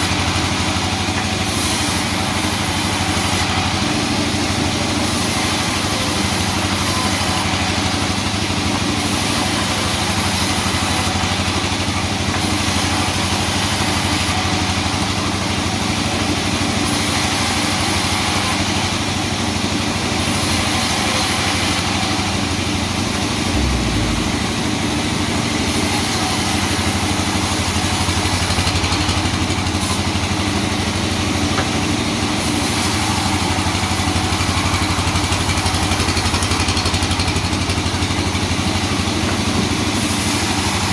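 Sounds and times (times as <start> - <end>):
sawmill engine running: 17.8 - 40.9.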